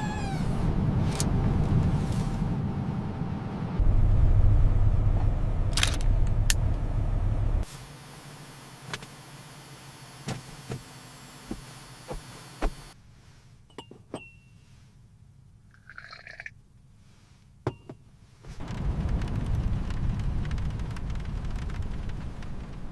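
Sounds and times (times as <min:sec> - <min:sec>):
deep steady rumble: 0:00.0 - 0:07.8, 0:18.5 - 0:22.9.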